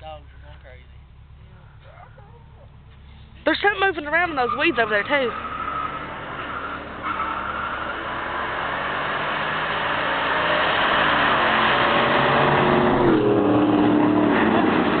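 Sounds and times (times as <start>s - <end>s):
race cars at full throttle: 0.2s - 15.0s.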